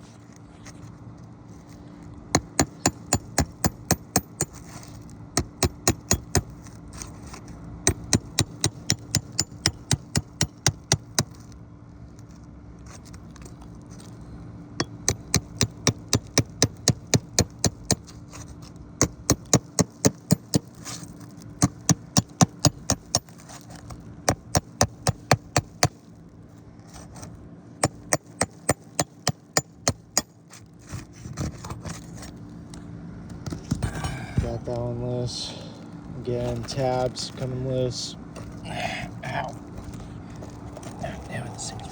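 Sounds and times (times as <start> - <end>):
hammer blows on roof: 2.4 - 4.6, 5.4 - 6.5, 7.9 - 11.3, 14.8 - 18.1, 19.0 - 20.8, 21.6 - 23.3, 24.3 - 26.0, 27.8 - 30.3.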